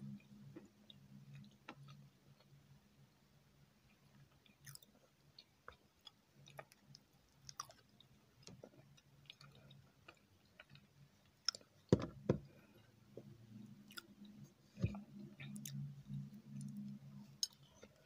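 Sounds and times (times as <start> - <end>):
person chewing: 4.4 - 11.9, 13.8 - 18.0.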